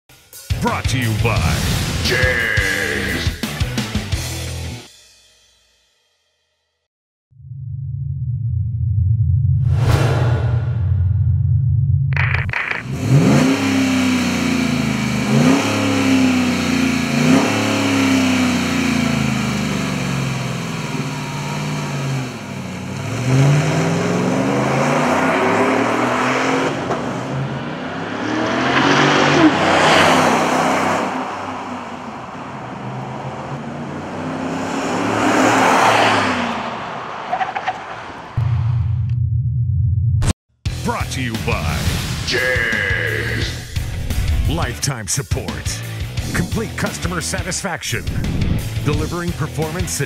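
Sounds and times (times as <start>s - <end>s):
truck engine revving: 12.2s - 39.1s.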